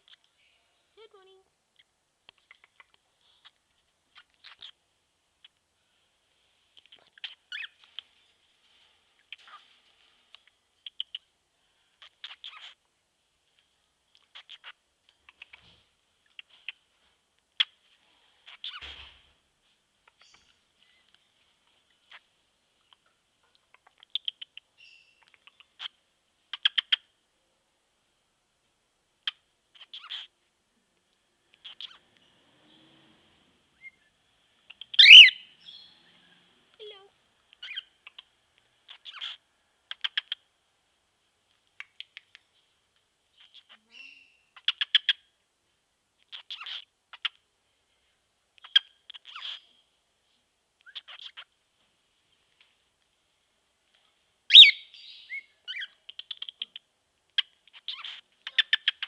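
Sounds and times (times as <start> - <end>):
cockatiel clicks and chirps: 1.8 - 3.5, 10.3 - 11.3, 14.1 - 15.6, 22.9 - 25.9, 26.5 - 27.0, 34.7 - 35.4, 38.9 - 40.4, 41.6 - 42.5, 43.4 - 45.2, 48.6 - 49.6, 54.5 - 59.0.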